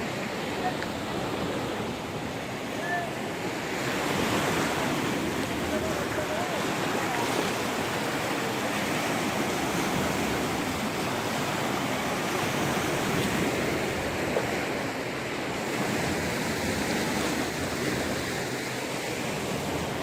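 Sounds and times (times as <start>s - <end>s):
floodwater rushing: 0.0s - 20.0s.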